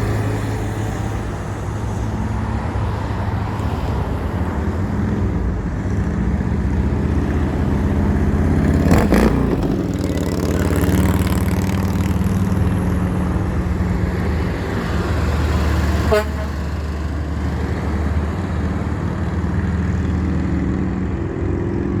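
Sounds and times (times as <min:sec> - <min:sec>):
heavy diesel truck engines running: 0:00.0 - 0:22.0
rising horn toot: 0:15.9 - 0:16.8.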